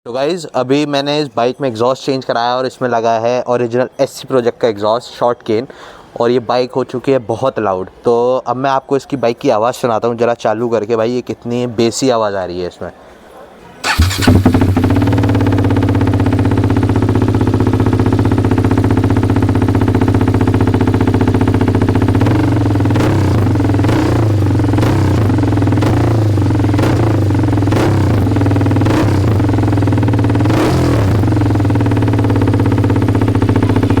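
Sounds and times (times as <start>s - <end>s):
engine revving bursts: 13.8s - 20.9s, 21.7s - 34.0s
motorcycle engine idling: 13.8s - 34.0s.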